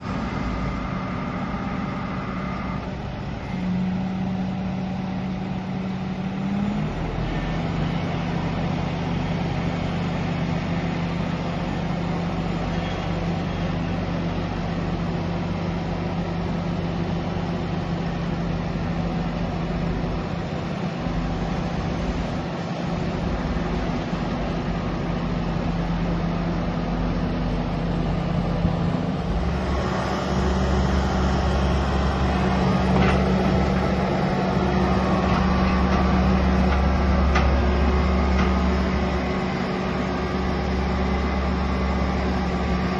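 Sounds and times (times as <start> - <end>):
diesel engine droning: 0.0 - 42.9.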